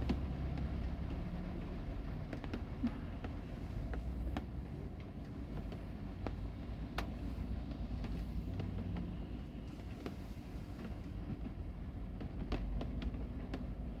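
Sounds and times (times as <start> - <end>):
rain drops tapping: 0.0 - 9.4.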